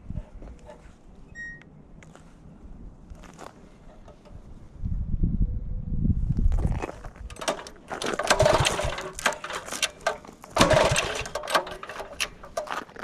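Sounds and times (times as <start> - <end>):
mini bike engine running: 7.3 - 12.7.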